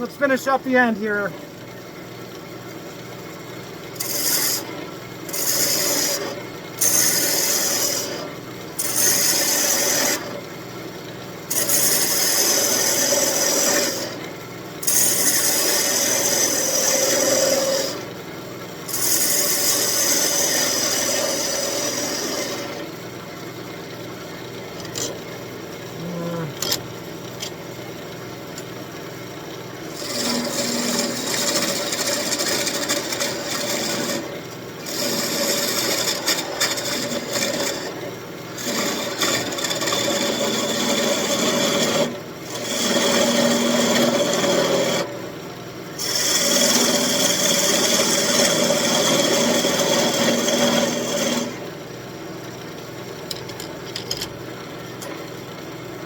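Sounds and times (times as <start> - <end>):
wood lathe humming: 0.0 - 1.7, 3.8 - 18.2, 18.8 - 23.3, 29.7 - 45.4, 46.0 - 51.9
lathe tool cutting wood hissing: 4.0 - 4.7, 5.3 - 10.4, 11.5 - 14.2, 14.8 - 18.1, 18.9 - 22.8, 30.0 - 45.1, 46.0 - 51.7.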